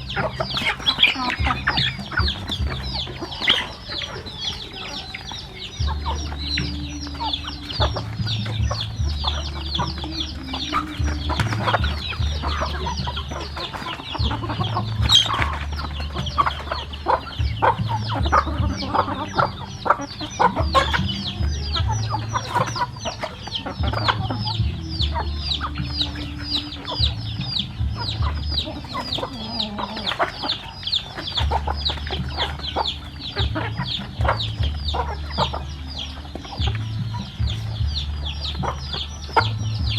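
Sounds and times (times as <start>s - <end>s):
chickens clucking and cheeping: 0.0s - 39.9s
low rumble: 5.5s - 23.0s.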